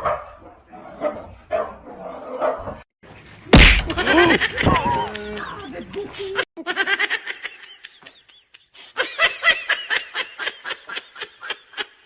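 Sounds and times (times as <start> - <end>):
person laughing: 3.6 - 12.0.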